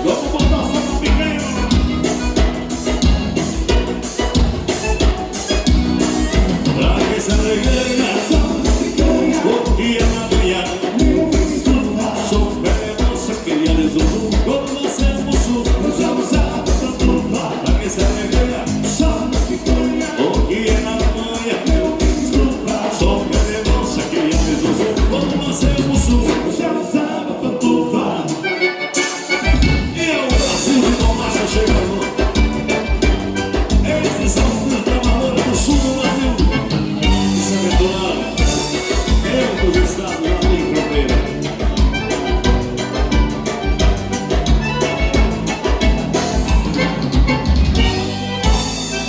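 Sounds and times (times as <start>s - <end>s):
bass drum beat: 0.0s - 26.6s, 29.3s - 49.0s
accordion: 0.0s - 49.0s
live dance band music: 0.0s - 49.0s.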